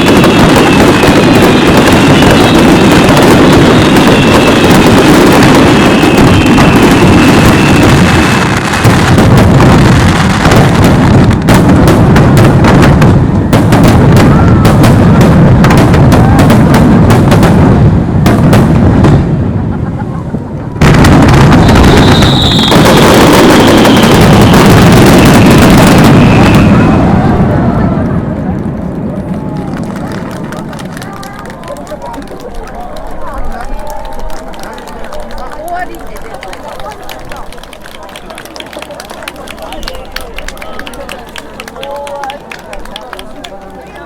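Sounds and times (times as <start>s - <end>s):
rapid sharp crackling: 0.0s - 17.6s, 20.8s - 26.9s
fireworks booming: 0.0s - 33.5s.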